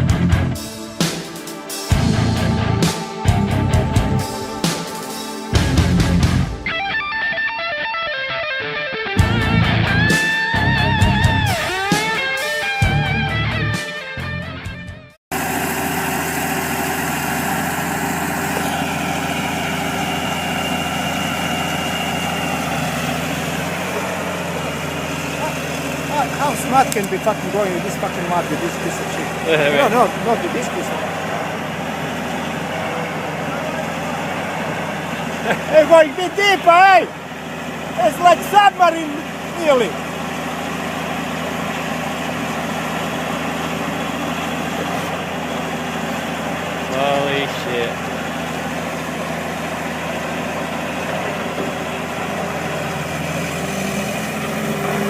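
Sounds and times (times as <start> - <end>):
heavy equipment engine idling: 15.3 - 55.0.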